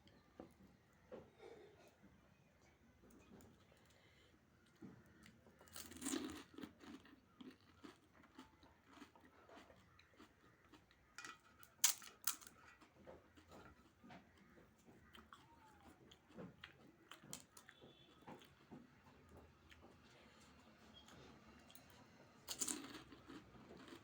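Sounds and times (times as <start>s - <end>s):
person chewing: 4.7s - 18.6s, 19.2s - 24.0s
crisp shells crunching in mouth: 5.6s - 11.1s, 22.5s - 24.0s.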